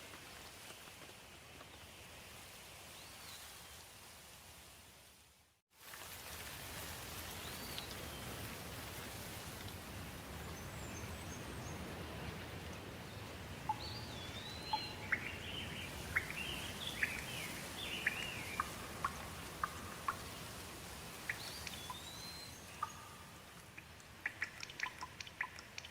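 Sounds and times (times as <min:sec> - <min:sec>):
rain falling: 0:05.8 - 0:25.9
birds chirping: 0:13.0 - 0:20.6, 0:21.2 - 0:25.9.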